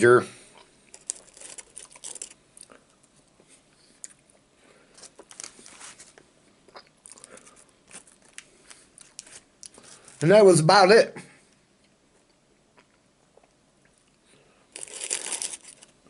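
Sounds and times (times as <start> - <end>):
person chewing fries: 0.5 - 10.1, 11.8 - 16.0
paper bag crinkling: 0.9 - 2.4, 5.0 - 6.2, 14.7 - 16.0.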